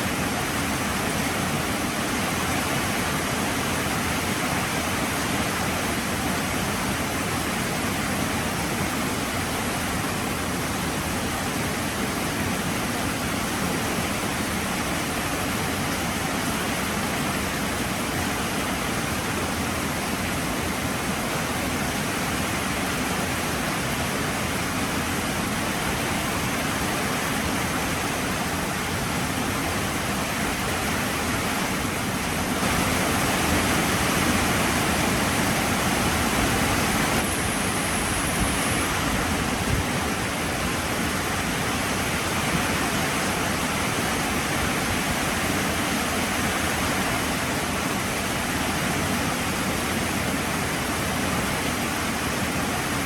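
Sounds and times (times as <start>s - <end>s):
heavy rain falling: 26.2s - 51.4s.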